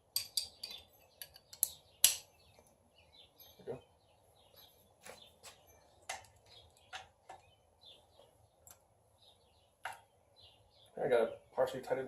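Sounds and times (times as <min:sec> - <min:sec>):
hand tools and bolts clicking: 0:00.0 - 0:02.3
birds chirping faintly: 0:00.0 - 0:12.0.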